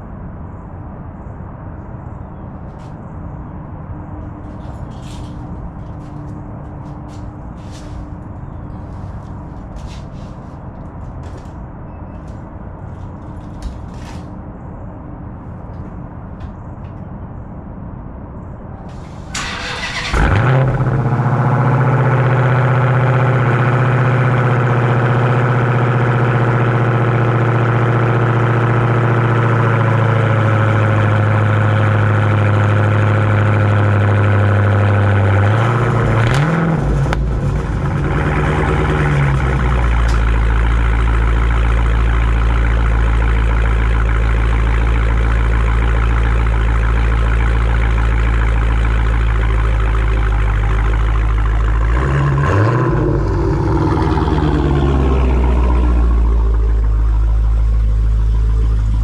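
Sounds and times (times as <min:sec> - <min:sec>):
car engine idling: 0:02.4 - 0:11.6, 0:18.8 - 0:59.0
car engine cranking: 0:18.9 - 0:27.7, 0:30.3 - 0:59.0.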